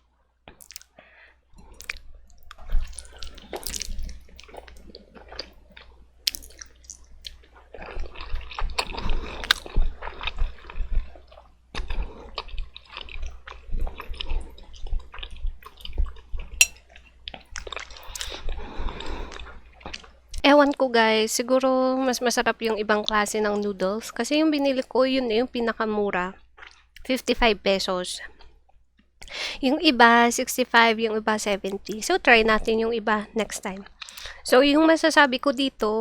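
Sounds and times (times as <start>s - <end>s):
chewing and lip smacks: 0.5s - 1.0s, 1.6s - 18.5s, 26.5s - 27.1s, 33.8s - 34.4s.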